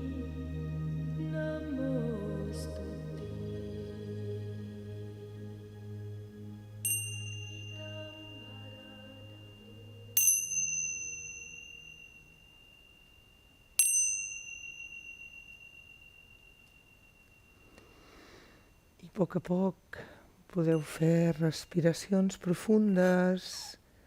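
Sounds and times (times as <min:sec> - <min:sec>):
soft background music: 0:00.0 - 0:15.4
small bell ringing: 0:06.8 - 0:19.0, 0:20.7 - 0:23.2.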